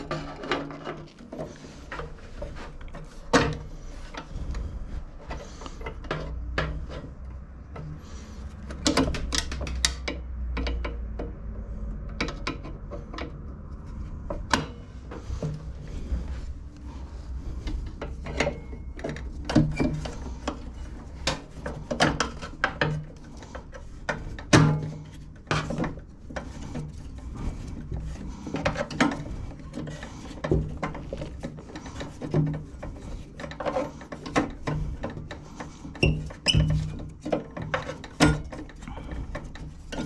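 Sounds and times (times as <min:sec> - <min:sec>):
metal clicks and knocks of tools: 0:08.5 - 0:15.6.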